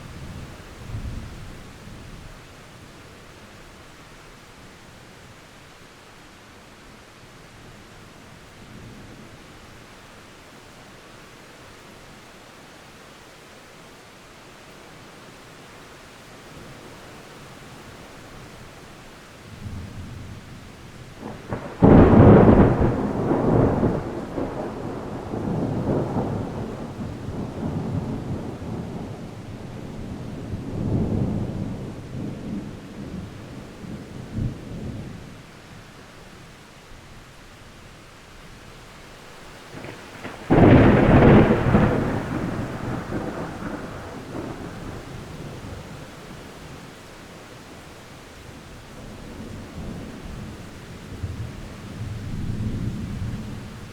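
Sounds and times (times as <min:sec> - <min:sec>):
rain hissing: 0:09.7 - 0:53.9
thunder clap and rolling rumble: 0:21.2 - 0:35.2, 0:39.7 - 0:46.8, 0:49.0 - 0:53.9.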